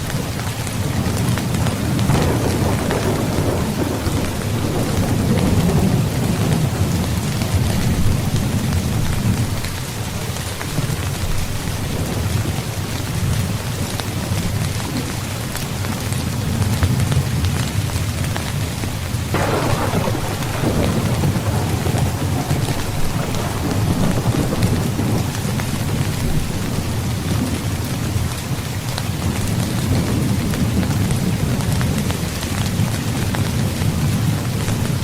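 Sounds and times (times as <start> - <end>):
heavy rain falling: 0.0 - 35.0
thunder rumbling: 0.8 - 9.7, 19.3 - 35.0.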